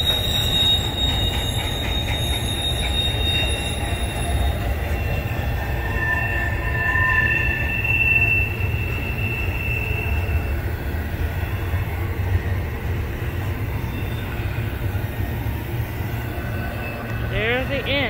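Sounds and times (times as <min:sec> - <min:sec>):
wheel squeal: 0:00.0 - 0:12.0, 0:13.7 - 0:14.8
freight train rumbling: 0:00.0 - 0:18.0.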